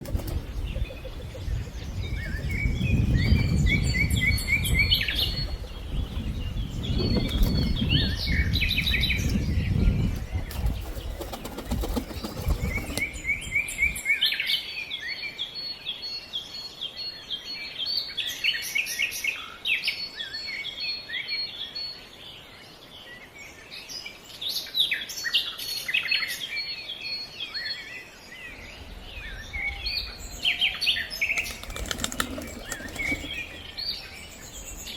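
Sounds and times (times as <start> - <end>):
birds chirping: 0.0 - 14.5, 26.2 - 34.9.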